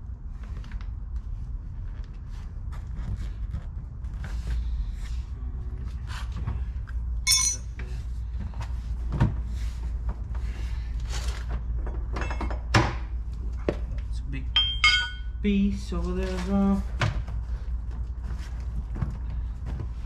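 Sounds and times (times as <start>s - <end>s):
metallic clink: 7.3s - 7.7s, 14.6s - 15.4s.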